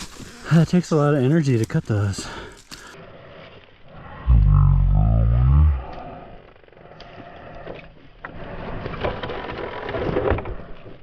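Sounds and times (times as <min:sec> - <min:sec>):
chainsaw scraping in a mount: 0:08.4 - 0:10.7.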